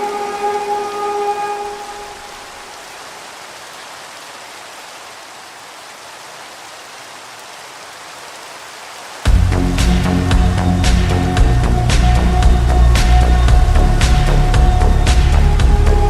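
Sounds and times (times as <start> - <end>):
music: 0.0 - 2.4, 9.3 - 16.0
steady rain hiss: 0.0 - 16.0.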